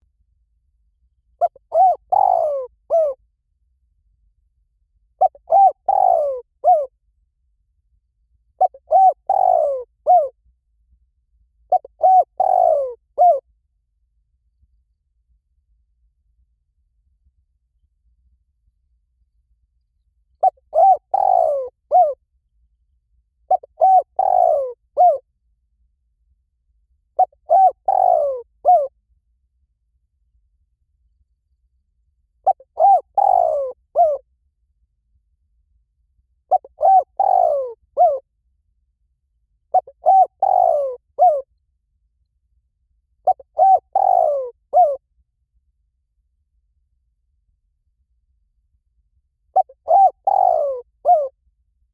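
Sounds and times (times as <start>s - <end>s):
dove cooing: 1.4s - 3.2s, 5.2s - 6.9s, 8.6s - 10.3s, 11.7s - 13.4s, 20.4s - 22.2s, 23.5s - 25.2s, 27.2s - 28.9s, 32.4s - 34.2s, 36.5s - 38.2s, 39.7s - 41.4s, 43.3s - 45.0s, 49.6s - 51.3s.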